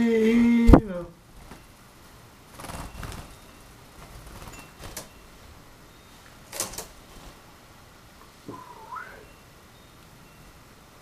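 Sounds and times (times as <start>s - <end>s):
bird wings fluttering: 1.3s - 1.7s, 2.5s - 5.3s
soft rustling: 6.1s - 8.5s.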